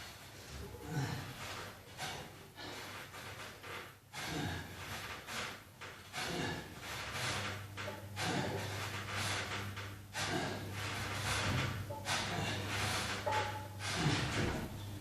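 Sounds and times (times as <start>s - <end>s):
man breathing hard: 0.7s - 3.2s, 6.2s - 6.8s, 10.1s - 11.4s.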